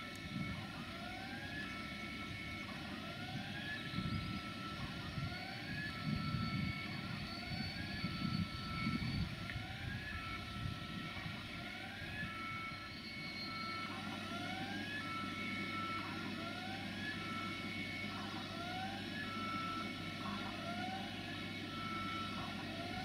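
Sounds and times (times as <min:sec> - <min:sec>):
machinery low rumble: 0:00.0 - 0:13.9.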